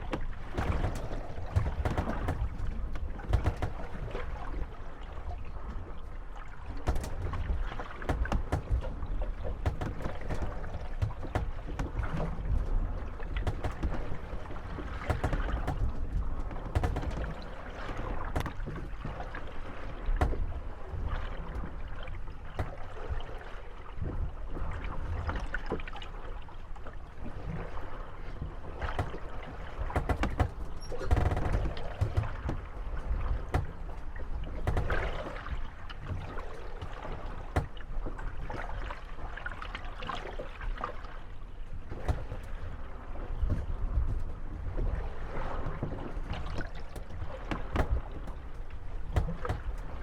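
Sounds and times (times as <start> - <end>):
boat hulls knocking and creaking: 0.0 - 50.0
water sloshing: 0.0 - 50.0.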